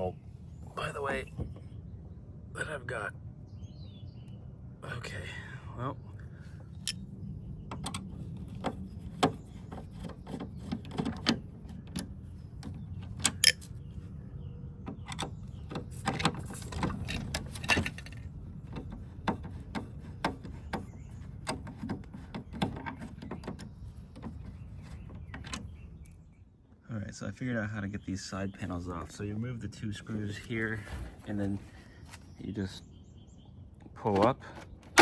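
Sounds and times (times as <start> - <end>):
plastic panels clicking and rattling: 6.8 - 14.1, 14.7 - 26.1.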